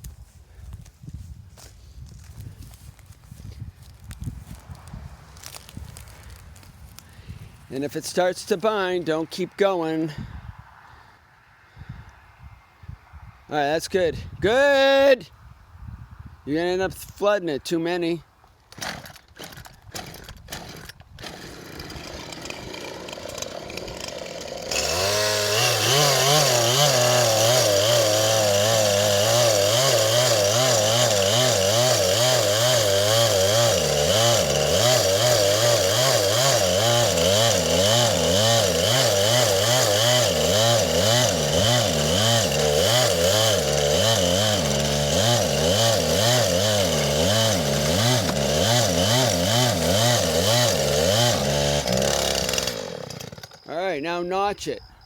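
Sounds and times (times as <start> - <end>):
chainsaw cutting tree trunk: 5.4 - 8.0, 18.7 - 53.7.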